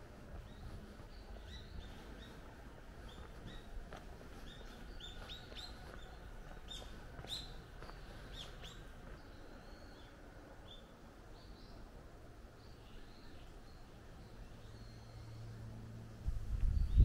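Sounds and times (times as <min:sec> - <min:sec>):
faint outdoor background noise: 0:00.0 - 0:17.0
small birds chirping: 0:00.0 - 0:17.0.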